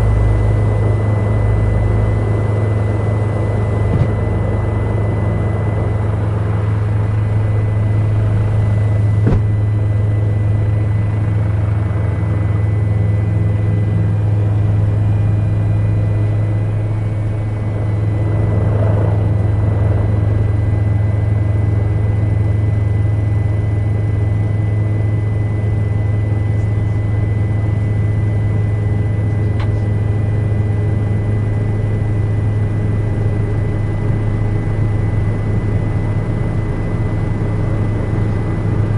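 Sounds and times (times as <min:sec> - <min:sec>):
helicopter cabin drone: 0:00.0 - 0:38.9.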